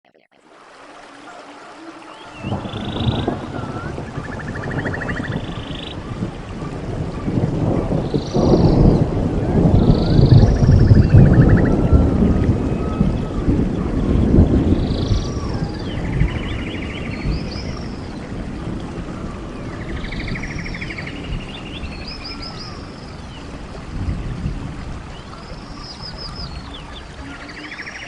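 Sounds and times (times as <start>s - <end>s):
wind rumbling in gusts: 0.6s - 28.0s
bird singing chirps and trill: 1.7s - 18.3s, 19.2s - 24.3s, 25.1s - 28.0s.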